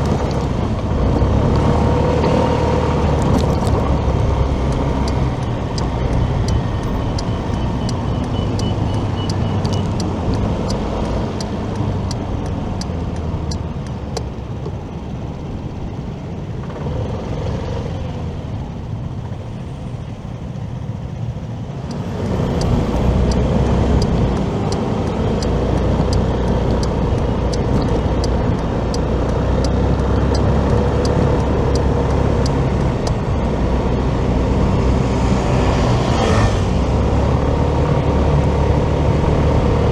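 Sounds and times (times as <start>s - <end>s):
light ticking: 0.0s - 14.8s, 21.8s - 35.8s
road and wind noise: 0.0s - 39.9s
motorcycle engine: 21.9s - 39.9s.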